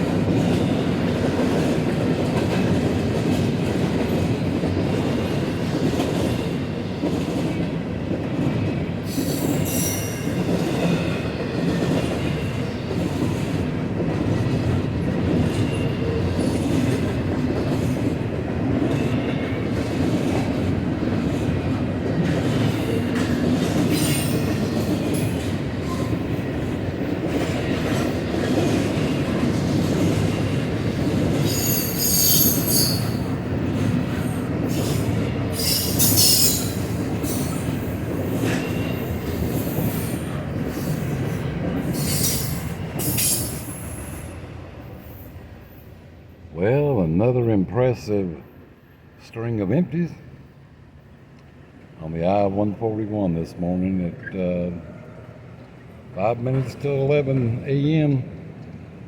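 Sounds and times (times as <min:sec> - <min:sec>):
freight train wheel rumble: 0:00.0 - 0:59.0
high-pitched wheel squeals: 0:31.5 - 0:33.2.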